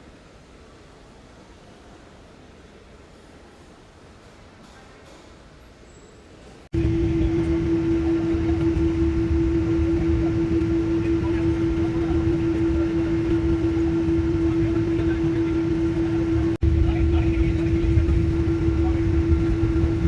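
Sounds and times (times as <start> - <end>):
constant droning hum: 6.6 - 20.0
airliner cabin rumble: 6.7 - 20.0.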